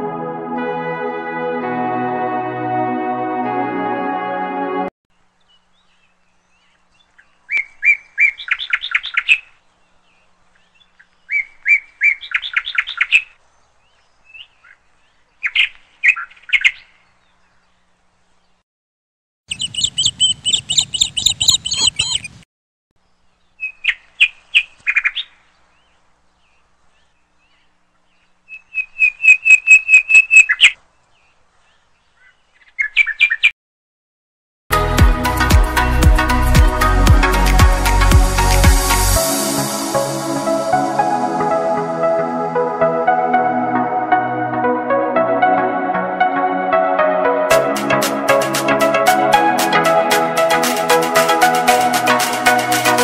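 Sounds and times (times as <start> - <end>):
songbird chirping: 5.2 - 18.6, 19.5 - 22.4, 23.0 - 33.5.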